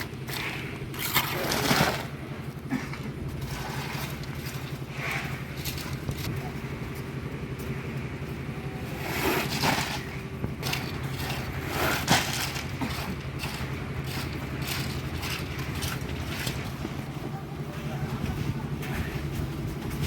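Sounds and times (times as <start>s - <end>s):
concrete crunching and scraping: 0.0s - 20.0s
machinery engine hum: 0.0s - 20.0s.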